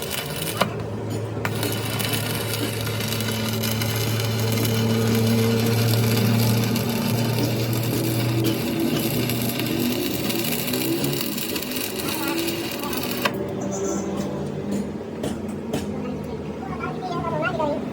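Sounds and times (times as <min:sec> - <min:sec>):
machine scraping metal: 0:00.0 - 0:14.2
mechanical hum: 0:00.0 - 0:17.9.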